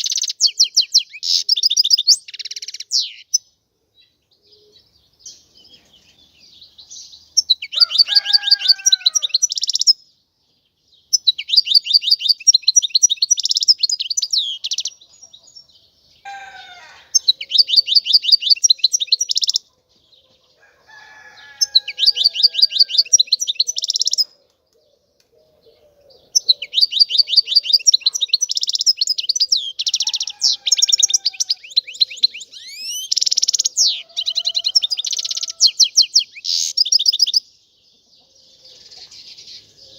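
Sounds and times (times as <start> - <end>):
goldfinch singing: 0.0 - 3.5, 11.2 - 15.6, 16.6 - 19.6, 21.4 - 24.4, 26.2 - 37.5.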